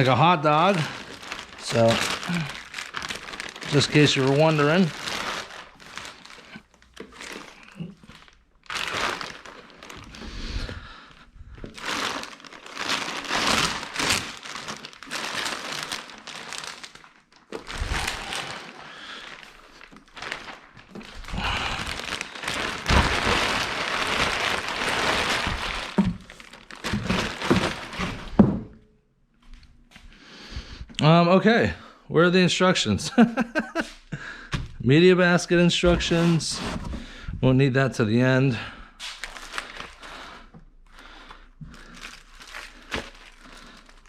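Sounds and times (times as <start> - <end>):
plastic packaging crinkling: 0.0 - 28.4, 39.0 - 44.0.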